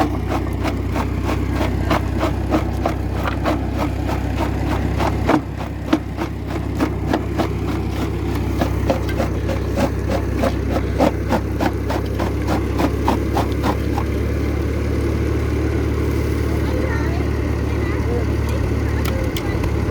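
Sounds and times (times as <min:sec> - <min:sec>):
rapid knocking: 0:00.0 - 0:14.1
rock crusher crushing rock: 0:00.0 - 0:14.5
tractor engine running: 0:00.0 - 0:19.9.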